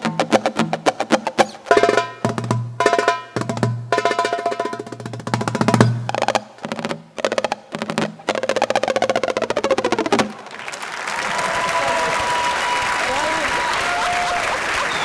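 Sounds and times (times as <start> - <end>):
hand drum rolls: 0.0 - 10.4
percussive guitar: 0.0 - 10.4.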